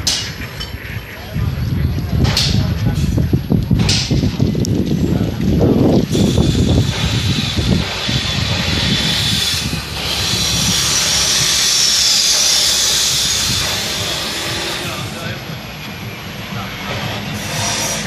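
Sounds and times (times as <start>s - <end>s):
loud steady hissing: 6.0s - 18.0s.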